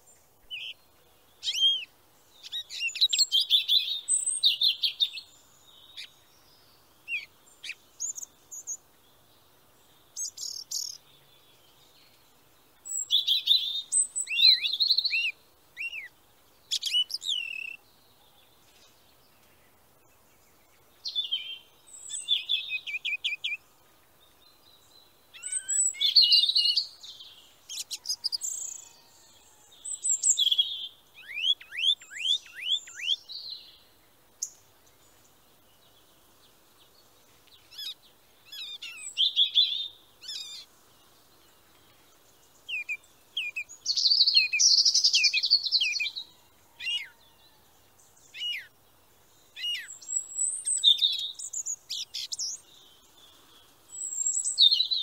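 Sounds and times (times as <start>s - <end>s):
small birds singing: 0.0s - 55.0s.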